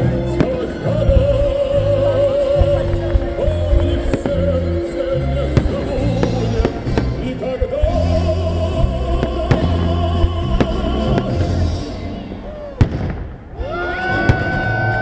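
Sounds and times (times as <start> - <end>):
loud music with bass: 0.0 - 12.4
fireworks bangs: 0.0 - 15.0.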